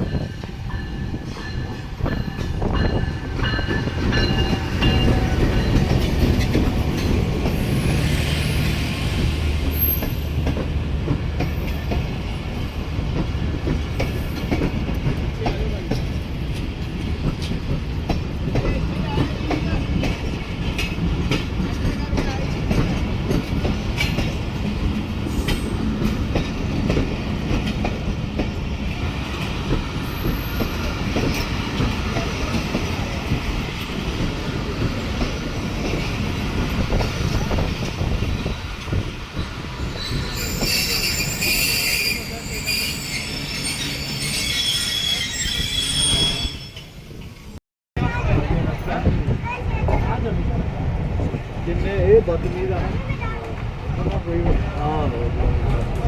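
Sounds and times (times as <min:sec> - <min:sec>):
train rumbling along track: 0:00.0 - 0:56.0
high wheel squeals: 0:39.8 - 0:47.2.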